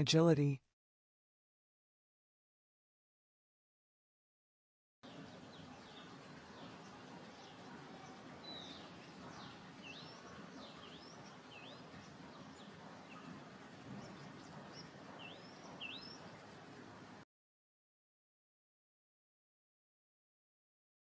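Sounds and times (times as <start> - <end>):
bird chirping faintly: 5.0 - 17.2
steady outdoor hiss: 5.0 - 17.2.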